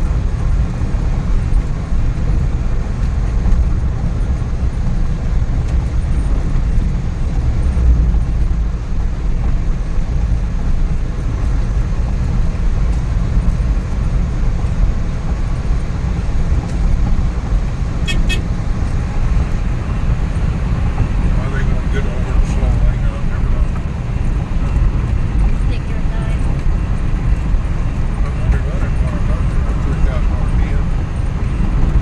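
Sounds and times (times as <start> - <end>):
engine and road noise drone: 0.0 - 32.0
high-pitched toot: 18.0 - 18.5.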